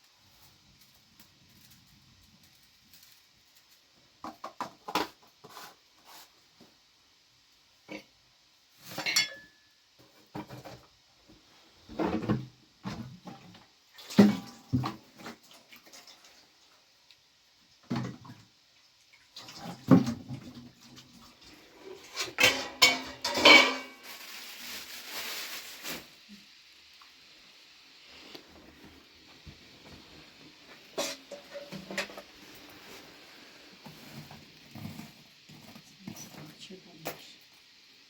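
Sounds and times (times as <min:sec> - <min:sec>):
steady hiss: 0:00.0 - 0:13.7, 0:20.9 - 0:38.0
pots and utensils clinking: 0:08.8 - 0:10.8, 0:14.0 - 0:15.4, 0:21.7 - 0:24.4, 0:30.7 - 0:37.3.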